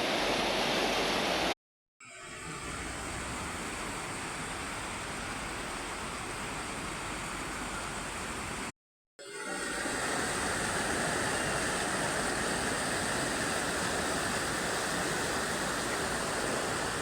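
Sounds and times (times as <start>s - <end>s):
running water rushing: 0.0s - 1.6s, 9.5s - 17.0s.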